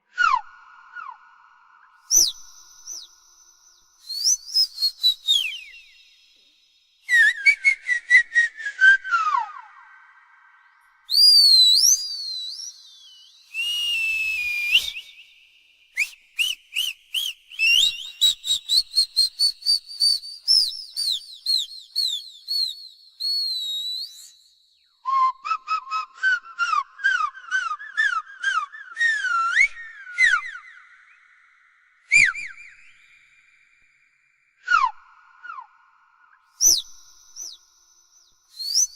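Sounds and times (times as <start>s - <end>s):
high warbling whistles and chirps: 1.9s - 7.8s, 11.1s - 26.1s, 36.6s - 37.8s, 38.5s - 38.9s.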